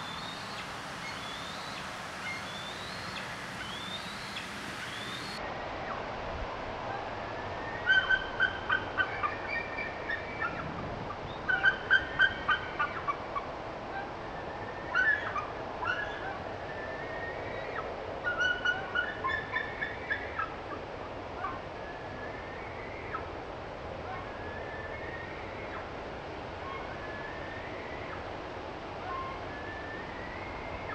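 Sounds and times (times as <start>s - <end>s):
slowed bird song: 0.0s - 5.4s
steady background hiss: 0.0s - 10.4s, 11.6s - 30.9s.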